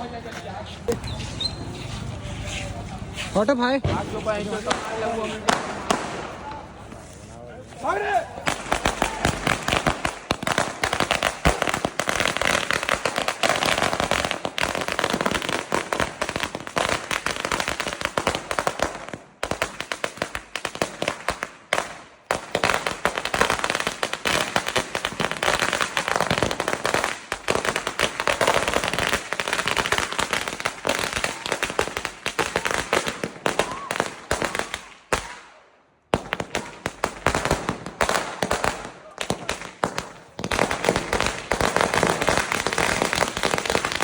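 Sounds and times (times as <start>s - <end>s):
firecracker rattle of bangs: 3.7s - 6.7s.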